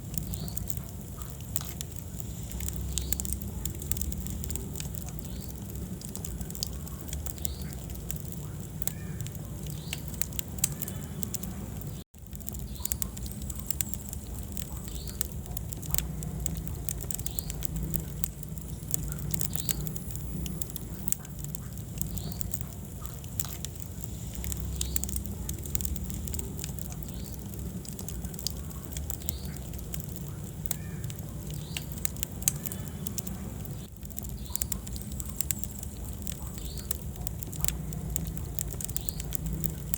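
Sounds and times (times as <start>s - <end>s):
fire crackling and popping: 0.0s - 39.9s
fire flames rumbling: 0.0s - 39.9s.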